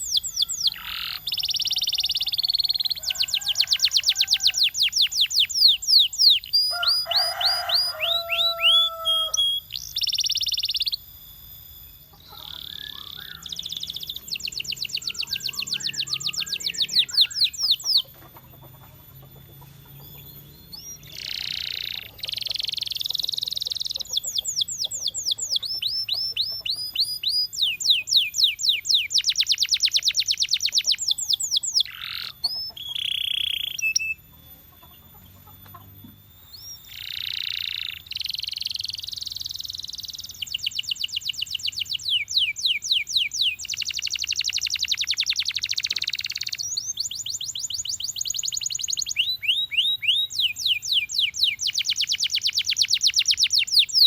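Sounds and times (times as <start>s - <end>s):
canary singing: 0.0s - 54.0s.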